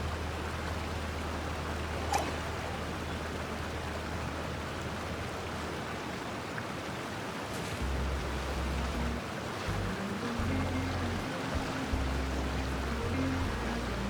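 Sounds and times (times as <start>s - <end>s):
soft background music: 7.8s - 14.0s.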